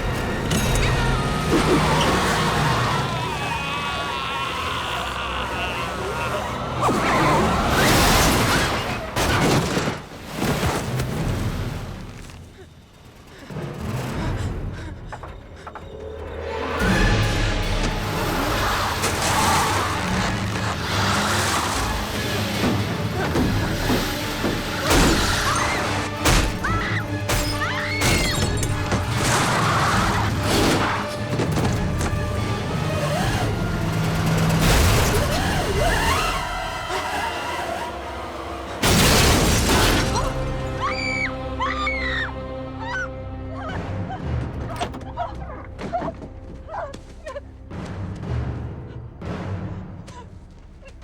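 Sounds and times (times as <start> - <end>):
shrill gliding cries: 0.0 - 7.8, 35.1 - 38.8, 40.5 - 44.0
horror film score music: 0.0 - 51.0.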